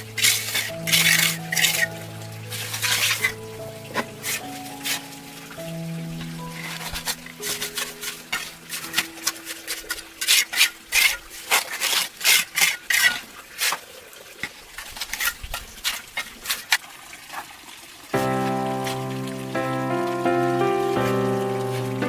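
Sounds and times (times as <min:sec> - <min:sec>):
scraping and tapping strokes: 0:00.0 - 0:05.3, 0:06.2 - 0:13.8
held music chord: 0:00.0 - 0:09.5, 0:18.2 - 0:22.0.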